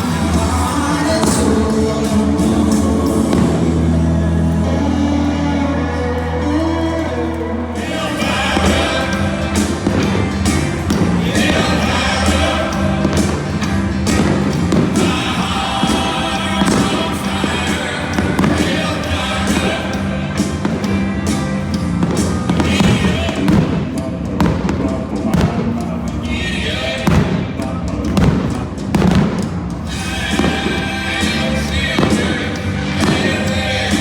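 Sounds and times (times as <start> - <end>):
music with singing over loudspeakers: 0.0 - 34.0
fireworks bursts banging: 7.8 - 26.0, 27.0 - 34.0.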